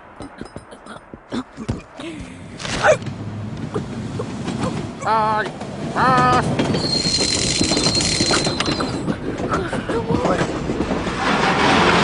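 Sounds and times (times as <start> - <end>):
train wheels clattering on track: 3.0 - 12.0
high squeal: 6.8 - 9.1.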